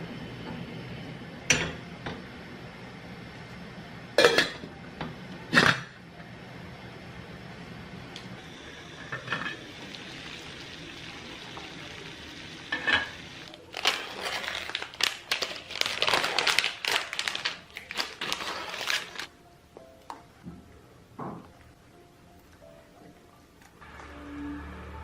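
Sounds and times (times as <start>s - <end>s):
steady hiss: 6.7s - 13.5s.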